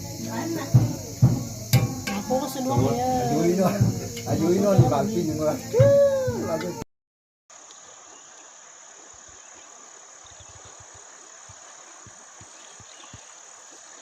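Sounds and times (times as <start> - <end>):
insects droning: 0.0 - 6.8, 7.5 - 14.0
soft low bumps: 0.0 - 6.8.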